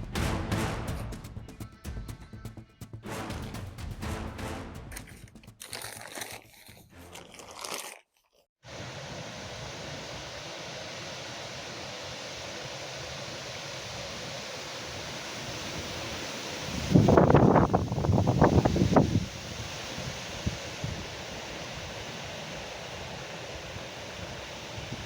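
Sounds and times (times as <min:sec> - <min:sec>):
crunching and rustling: 0:04.9 - 0:08.5
wind noise: 0:15.4 - 0:25.0.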